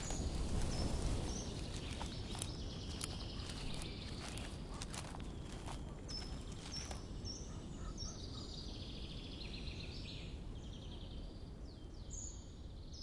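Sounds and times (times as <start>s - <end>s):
footsteps: 0.0s - 7.1s
songbirds chirping and trilling: 0.0s - 13.0s.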